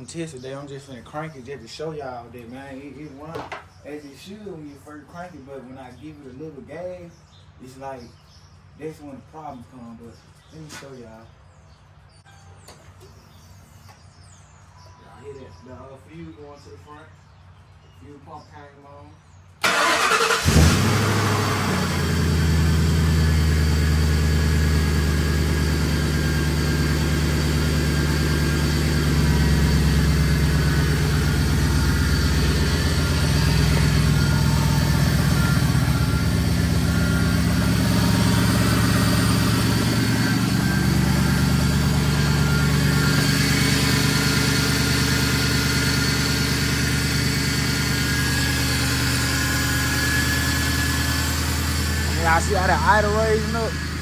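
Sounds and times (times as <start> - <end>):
car engine idling: 19.6 - 54.0.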